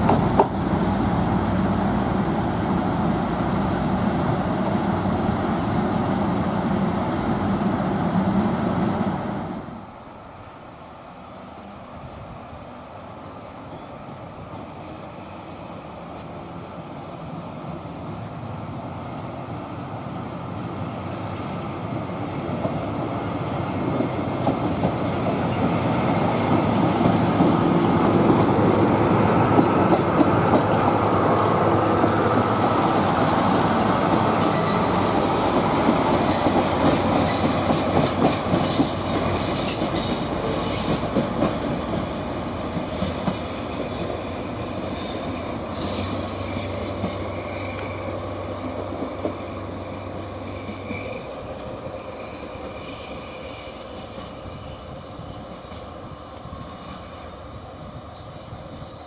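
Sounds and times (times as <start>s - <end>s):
train running on rails: 0.0s - 59.0s
wheels clacking over rail joints: 23.4s - 31.4s, 32.4s - 51.2s
high wheel squeal: 45.0s - 48.5s, 49.8s - 55.0s.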